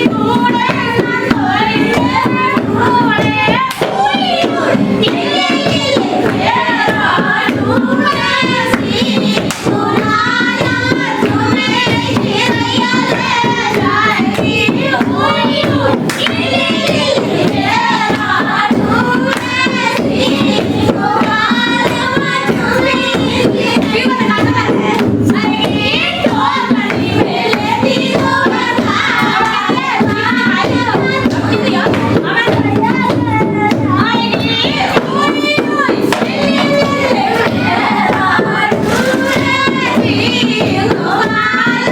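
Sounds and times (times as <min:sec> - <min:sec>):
folk song sung in ornamented voice: 0:00.0 - 0:41.9
hand clapping: 0:03.2 - 0:11.6, 0:12.2 - 0:20.6, 0:36.0 - 0:40.0.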